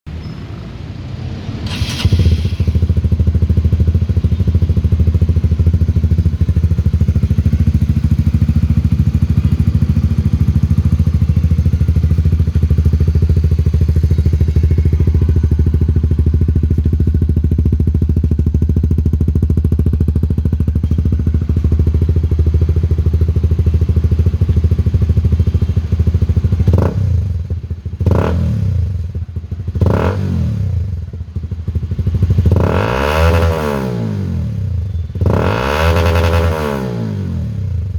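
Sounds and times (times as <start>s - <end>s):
motorcycle engine idling: 1.7s - 37.9s.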